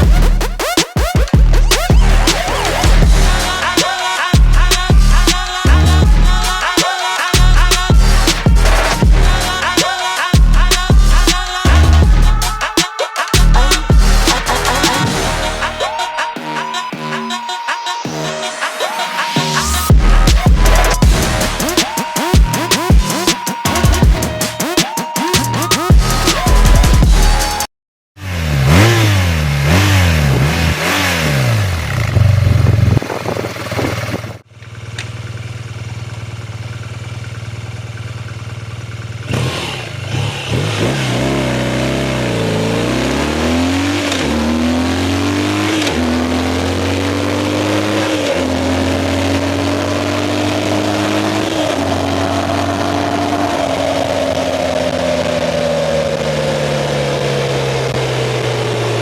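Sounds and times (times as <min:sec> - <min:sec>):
motorcycle engine revving and idling: 0:00.0 - 0:12.7, 0:28.2 - 0:59.0
motorcycle accelerating through gears: 0:28.2 - 0:59.0.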